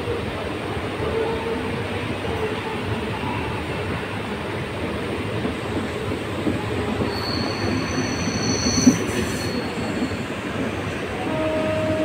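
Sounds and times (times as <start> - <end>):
electric train rumbling past: 0.0 - 12.0
high metallic squeal: 7.1 - 10.3.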